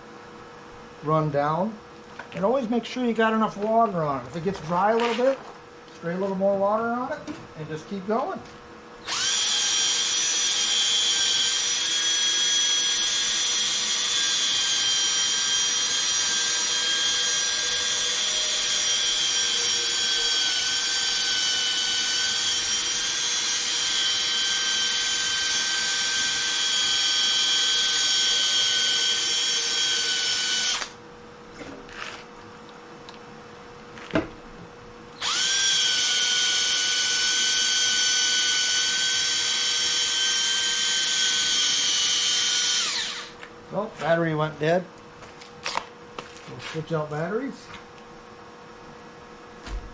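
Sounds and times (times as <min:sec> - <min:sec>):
cordless drill sanding whine: 0:09.0 - 0:31.0, 0:35.2 - 0:43.4.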